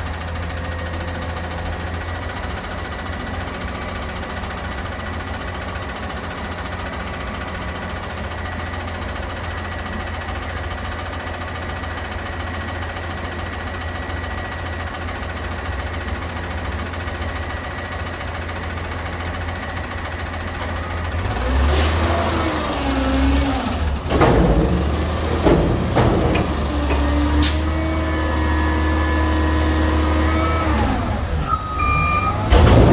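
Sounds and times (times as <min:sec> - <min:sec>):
garbage truck engine idling: 0:00.1 - 0:32.9
sharp metal clanks and knocks: 0:24.0 - 0:28.3.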